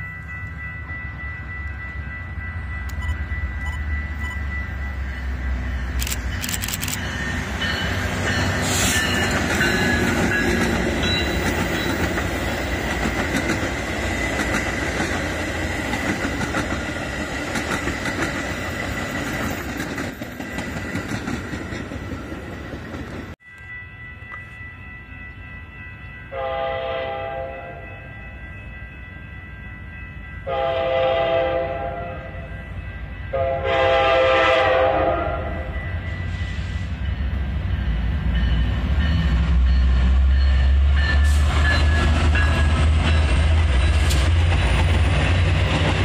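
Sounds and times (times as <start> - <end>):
train wheels clattering on rails: 5.8 - 23.4, 37.3 - 46.0
distant train horn: 26.3 - 28.2, 30.4 - 37.1.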